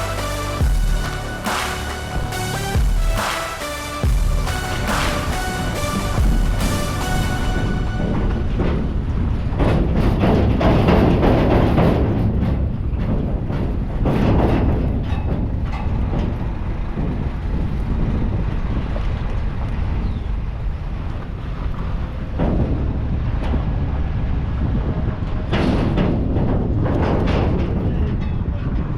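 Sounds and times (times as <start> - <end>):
low vehicle rumble: 0.0 - 28.9
rattling and clattering: 4.0 - 18.6, 21.8 - 28.9.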